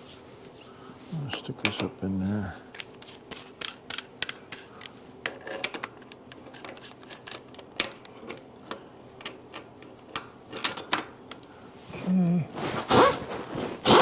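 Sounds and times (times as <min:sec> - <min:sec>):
metal parts and tools clinking: 0:02.7 - 0:11.4.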